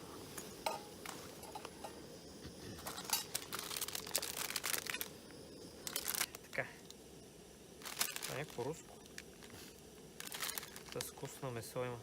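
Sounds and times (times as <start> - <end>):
plastic packet crinkling: 3.0 - 5.1, 5.8 - 6.4, 7.8 - 11.3.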